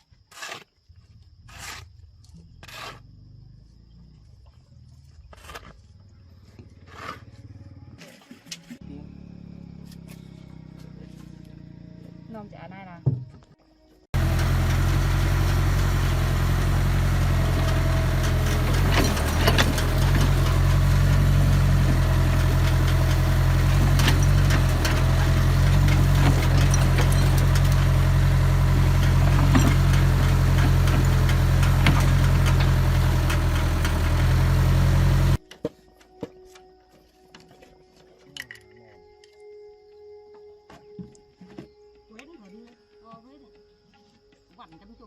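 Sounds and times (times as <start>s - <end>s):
diesel engine running: 14.1s - 35.4s.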